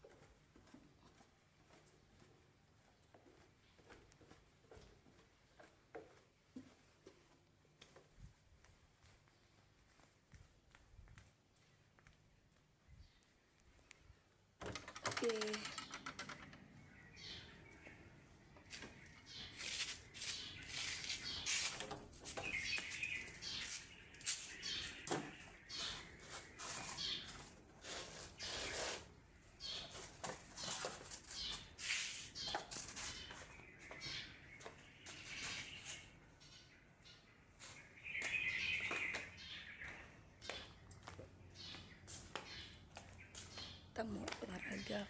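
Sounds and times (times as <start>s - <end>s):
small birds chirping: 11.5s - 14.6s, 15.2s - 45.0s.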